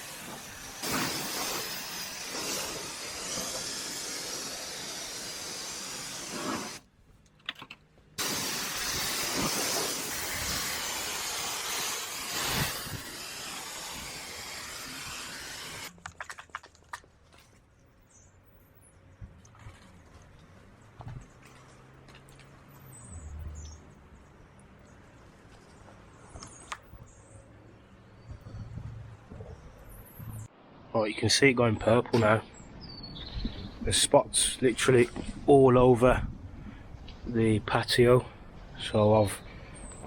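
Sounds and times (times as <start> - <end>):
liquid spraying from nozzle: 0.0 - 6.8, 8.2 - 16.1.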